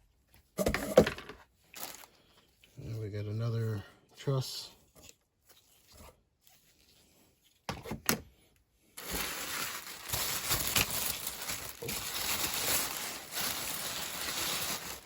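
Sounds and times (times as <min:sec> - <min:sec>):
packing paper crinkling: 0:01.7 - 0:02.2, 0:09.0 - 0:15.0.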